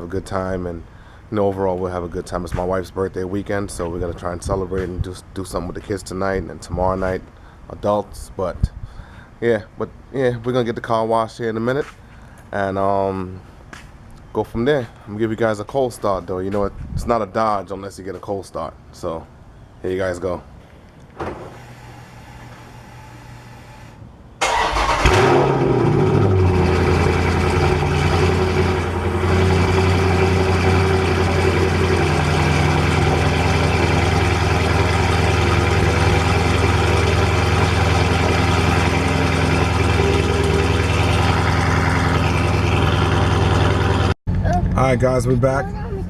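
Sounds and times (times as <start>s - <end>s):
car engine starting and idling: 23.4s - 45.0s.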